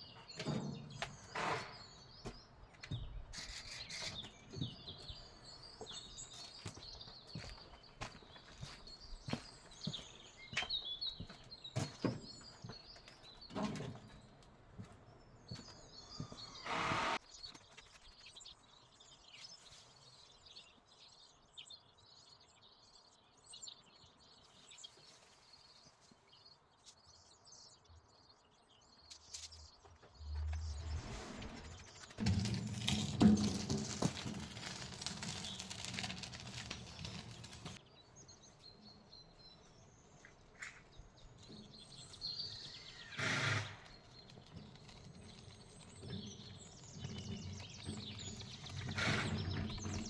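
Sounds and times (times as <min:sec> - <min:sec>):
birds chirping: 0:00.0 - 0:50.0
branches snapping and rustling: 0:31.9 - 0:37.8.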